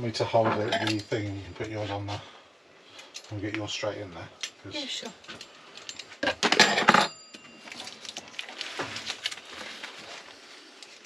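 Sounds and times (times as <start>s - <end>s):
metal kitchenware clattering: 0.4s - 1.4s, 6.2s - 7.3s
metallic ring: 6.0s - 8.0s.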